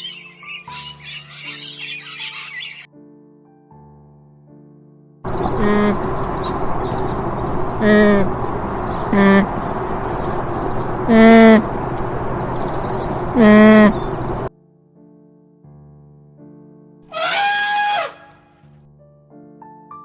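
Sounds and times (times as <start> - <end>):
animal calling: 5.3 - 14.5
birds chirping: 5.3 - 14.5
outdoor background noise: 5.3 - 14.5.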